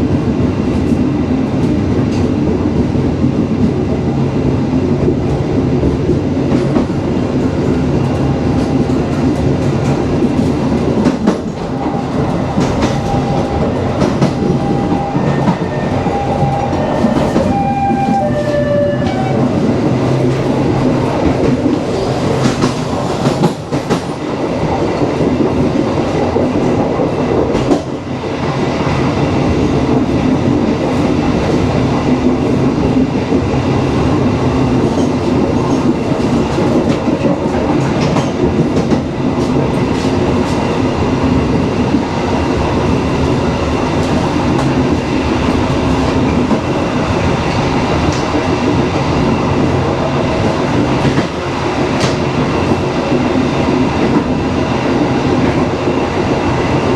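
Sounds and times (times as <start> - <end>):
train wheels rumbling on rail: 0.0 - 56.9
track clicks: 11.0 - 19.6.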